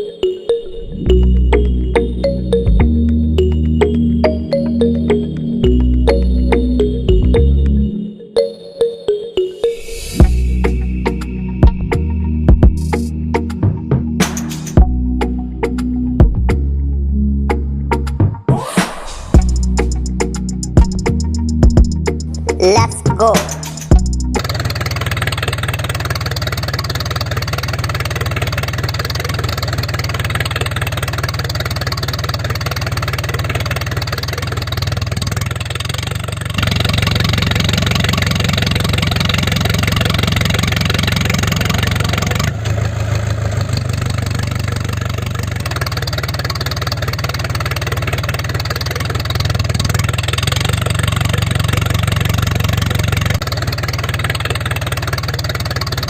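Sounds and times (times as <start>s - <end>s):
mini tractor engine running: 22.6s - 56.0s.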